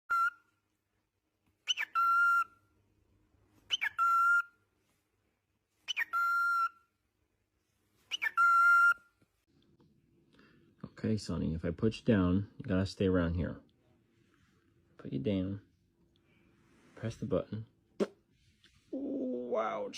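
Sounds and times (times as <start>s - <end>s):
parrot whistling: 0.0s - 0.5s, 1.6s - 2.6s, 3.7s - 4.6s, 5.8s - 6.9s, 8.1s - 9.2s.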